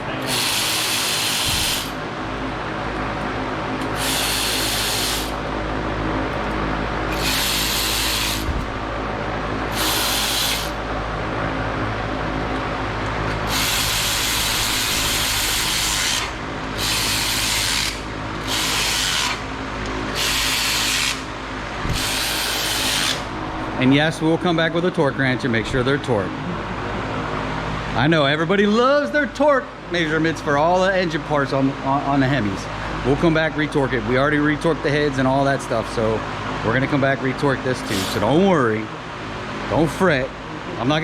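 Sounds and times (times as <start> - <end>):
low shop hum: 0.0 - 41.0
power tool driving bolts: 0.2 - 2.0, 3.8 - 5.4, 7.1 - 8.6, 9.7 - 10.8, 13.4 - 19.4, 20.2 - 21.2, 21.8 - 23.3.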